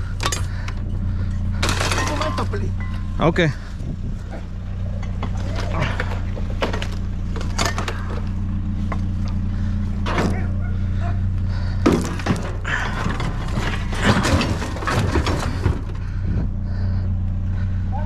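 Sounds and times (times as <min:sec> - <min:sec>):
vehicle engine idling: 0:00.0 - 0:18.0
scrap metal knocking and clattering: 0:00.1 - 0:03.2, 0:04.9 - 0:09.4, 0:11.6 - 0:16.2.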